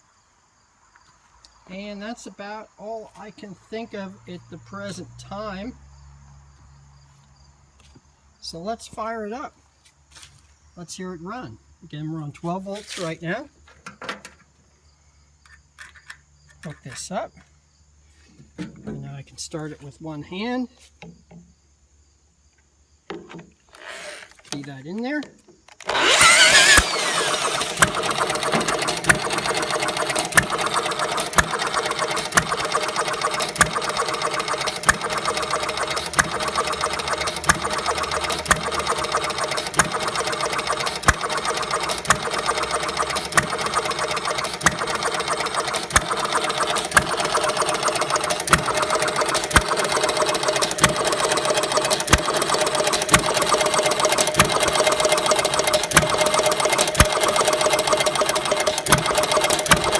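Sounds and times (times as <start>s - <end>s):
engine mechanical clatter: 25.8s - 59.9s
sharp engine crack: 25.8s - 59.9s.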